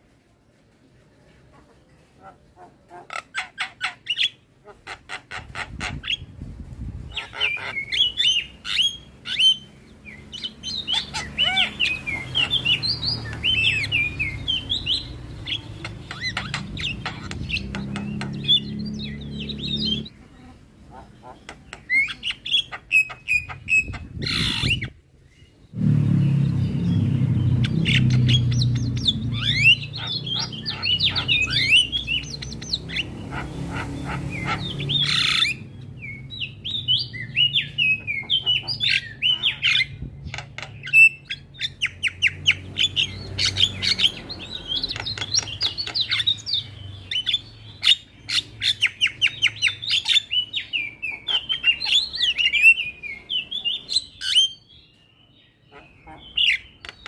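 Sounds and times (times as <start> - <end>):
bird chattering whistles: 27.7 - 40.0.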